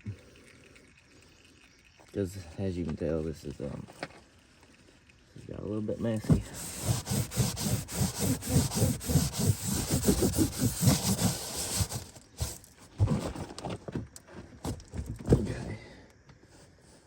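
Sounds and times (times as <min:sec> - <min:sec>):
towel rubbing a surface: 0:06.2 - 0:12.6.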